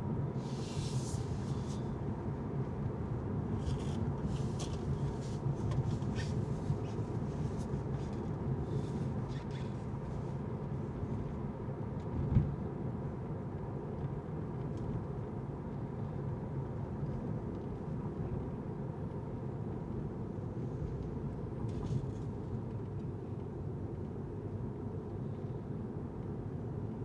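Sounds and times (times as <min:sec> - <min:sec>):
car road rumble: 0:00.4 - 0:11.4.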